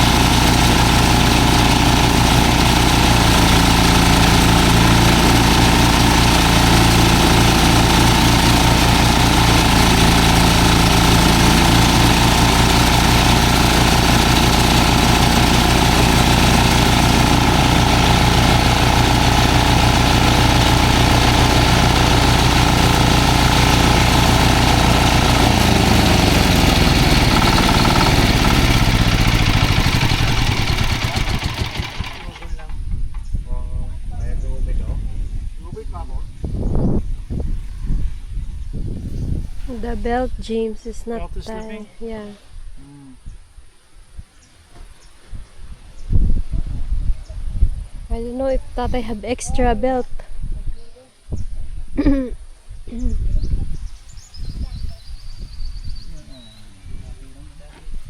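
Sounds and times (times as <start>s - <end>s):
farm machine engine running: 0.0s - 32.8s.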